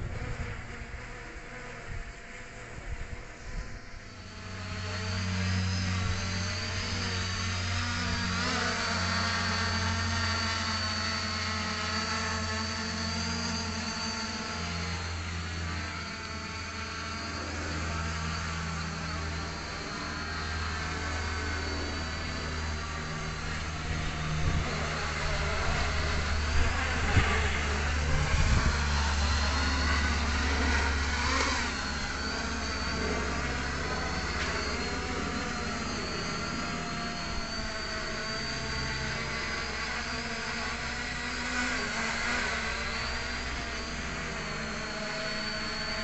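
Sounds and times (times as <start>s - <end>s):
drone propellers whining: 0.0s - 46.0s
wind buffeting microphone: 25.6s - 29.2s.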